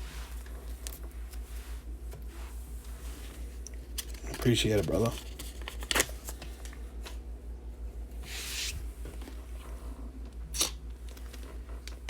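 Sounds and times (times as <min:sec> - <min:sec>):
low electrical hum: 0:00.0 - 0:12.0
papery wrapper rustle: 0:03.9 - 0:06.8.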